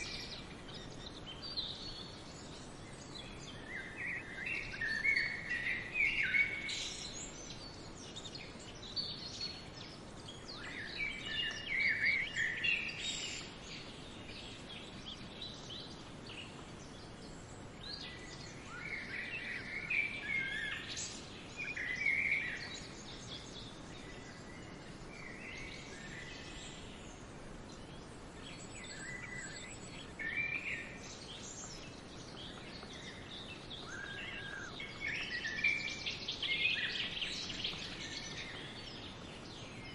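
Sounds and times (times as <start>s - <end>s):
faint outdoor hiss: 0.0s - 39.9s
small birds chirping: 0.0s - 39.9s.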